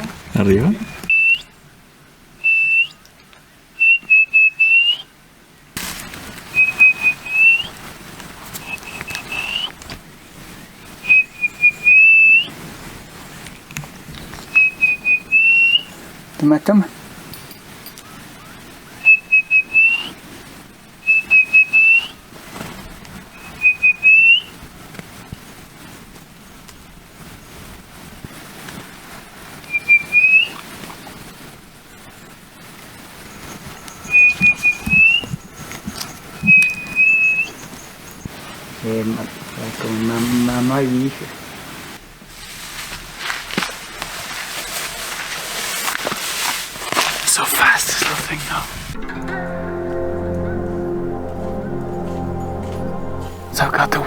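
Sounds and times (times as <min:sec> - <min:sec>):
person whistling bird call: 0:02.4 - 0:03.0, 0:19.1 - 0:20.1, 0:34.0 - 0:35.3, 0:36.5 - 0:37.6.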